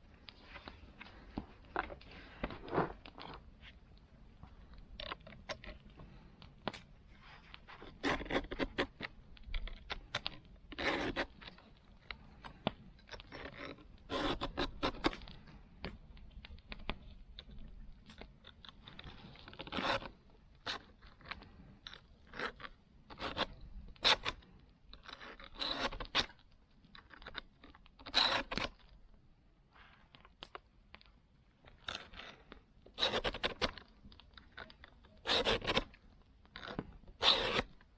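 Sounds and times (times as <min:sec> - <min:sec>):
saw scraping strokes: 0:35.3 - 0:35.8, 0:37.2 - 0:37.7.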